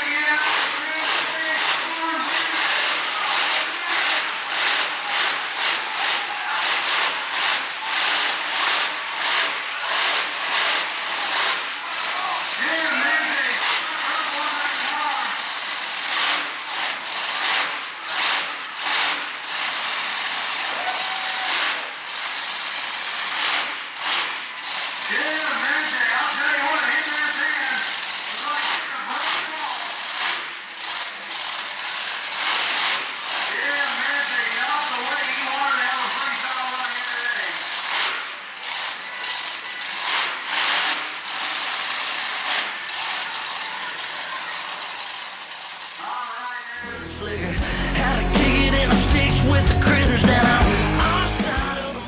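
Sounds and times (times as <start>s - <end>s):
truck engine revving: 0.0s - 52.0s.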